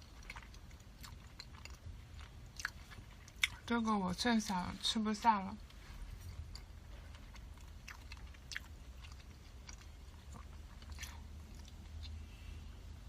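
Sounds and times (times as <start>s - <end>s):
person chewing food: 0.0s - 3.7s, 5.6s - 12.6s.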